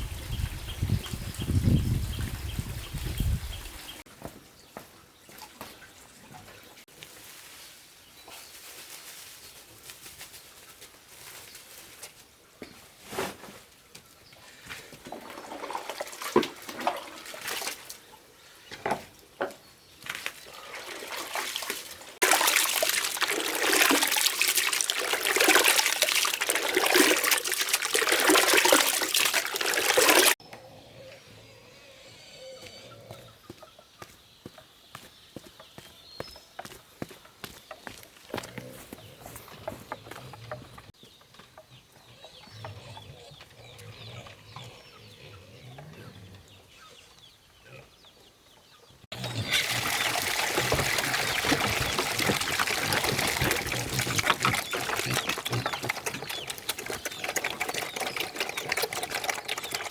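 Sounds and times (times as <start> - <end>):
water splashing and pouring: 15.0 - 18.0, 20.4 - 30.4, 49.1 - 59.9.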